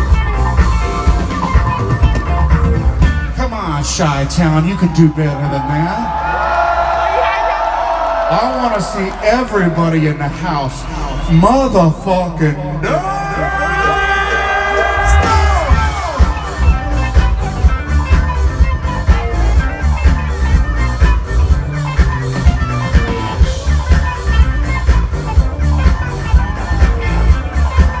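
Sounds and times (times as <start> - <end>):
live rock band playing: 0.0 - 4.7, 13.6 - 28.0.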